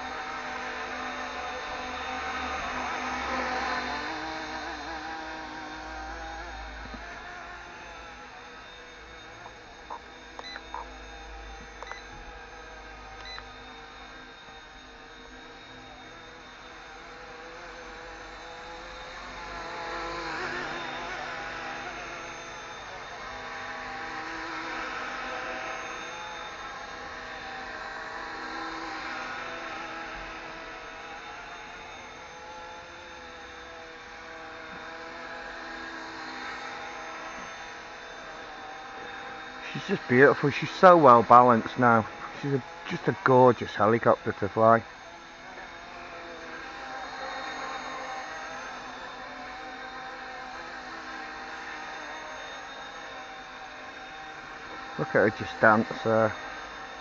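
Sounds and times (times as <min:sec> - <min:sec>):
model helicopter rotor whine: 0:00.0 - 0:57.0
short beeps: 0:09.9 - 0:10.9, 0:11.8 - 0:12.1.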